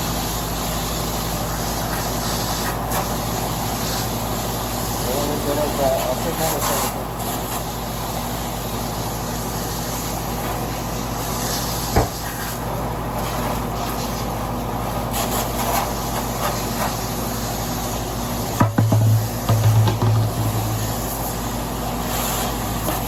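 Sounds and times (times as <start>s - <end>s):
air conditioner unit humming: 0.0s - 23.0s
cleaner spray hissing: 15.2s - 23.0s.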